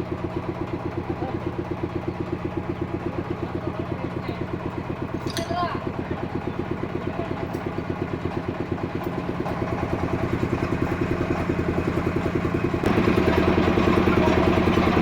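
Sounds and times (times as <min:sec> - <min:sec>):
sawmill engine pulsing: 0:00.0 - 0:15.0.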